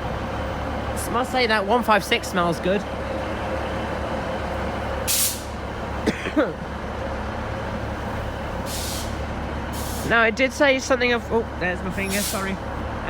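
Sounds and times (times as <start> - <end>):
rumble of idling trains: 0.0 - 13.0
air brake hiss: 5.1 - 5.6, 8.6 - 9.2, 9.8 - 10.1, 12.0 - 12.5.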